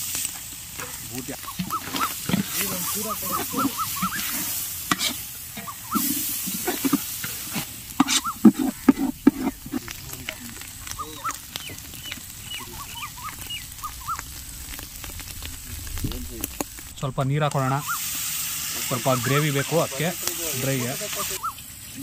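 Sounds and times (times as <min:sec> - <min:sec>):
meat sizzling in hot oil: 0:00.0 - 0:22.0
utensil scraping metal pot: 0:00.8 - 0:14.1.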